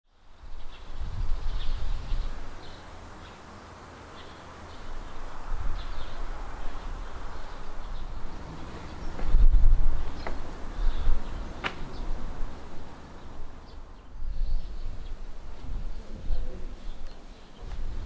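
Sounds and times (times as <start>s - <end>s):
bird chirping: 0.1s - 18.0s
wind buffeting microphone: 0.3s - 3.0s, 4.7s - 18.0s.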